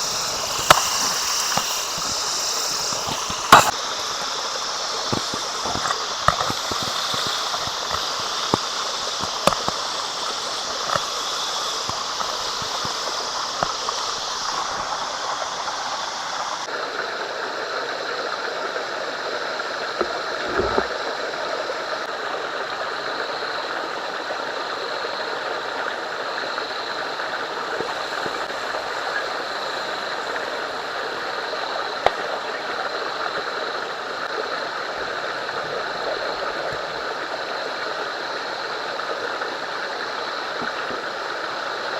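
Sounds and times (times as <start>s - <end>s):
fire crackling pops: 0.0s - 3.8s
steak sizzling on a grill: 0.0s - 14.9s.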